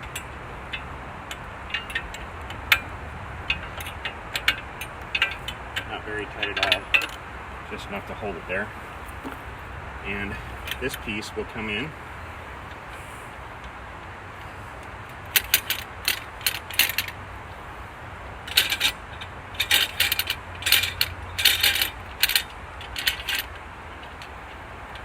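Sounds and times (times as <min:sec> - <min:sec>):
metallic clicks and rattles: 0:00.0 - 0:07.9, 0:14.4 - 0:17.2, 0:18.2 - 0:25.0.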